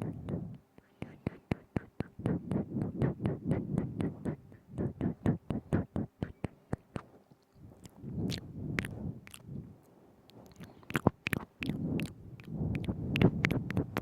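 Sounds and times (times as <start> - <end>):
tongue clicks and lip smacks: 0.0 - 9.6, 10.3 - 14.0.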